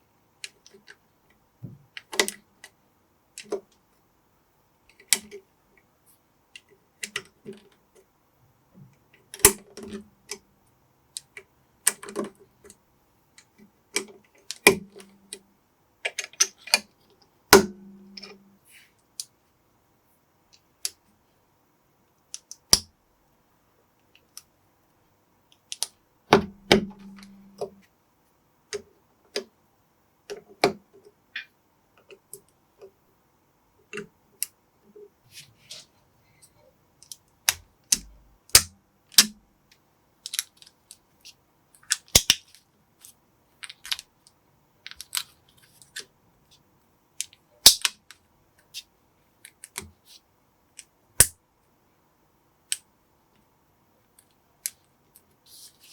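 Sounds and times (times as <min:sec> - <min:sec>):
sharp plastic snaps: 0:25.5 - 0:27.8, 0:37.0 - 0:41.0, 0:41.8 - 0:42.6, 0:47.2 - 0:48.8, 0:50.7 - 0:51.4
plastic bricks clicking together: 0:41.8 - 0:42.5.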